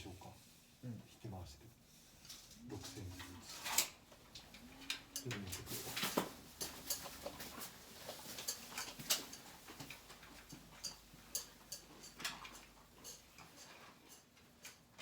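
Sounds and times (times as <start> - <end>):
light sharp clicks and taps: 3.8 - 15.0.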